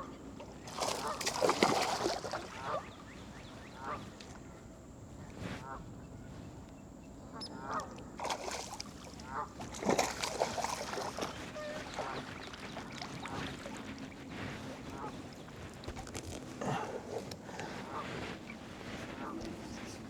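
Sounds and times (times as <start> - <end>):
geese honking: 10.6 - 15.8, 17.4 - 20.0.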